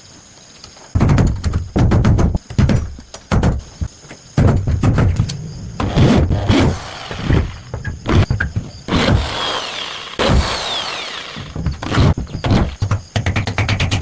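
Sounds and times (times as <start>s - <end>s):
knocks and thuds: 1.0s - 14.0s
tool scraping: 5.8s - 12.9s.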